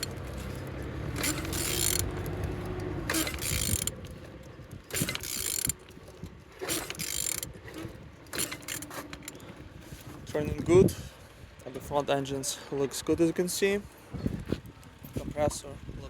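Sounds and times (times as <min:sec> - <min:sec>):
ratchet wrench clicking and grinding: 0:00.0 - 0:09.4.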